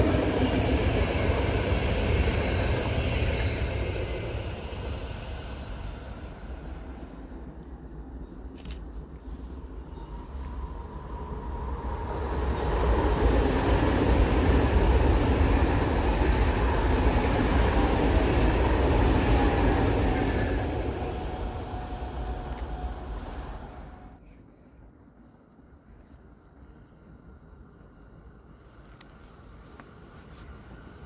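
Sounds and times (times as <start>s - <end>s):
passenger train rumbling past: 0.0s - 24.2s
faint steady whine: 0.0s - 31.0s.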